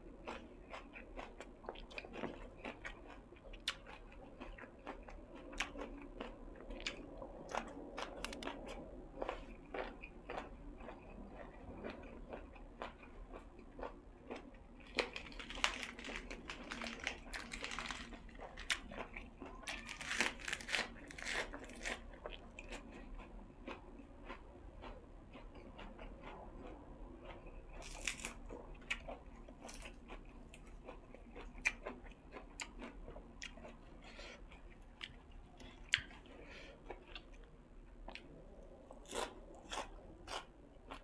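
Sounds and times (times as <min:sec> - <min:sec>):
person chewing food: 0:00.0 - 0:41.0
crisp crunching: 0:14.8 - 0:22.1, 0:27.8 - 0:28.4.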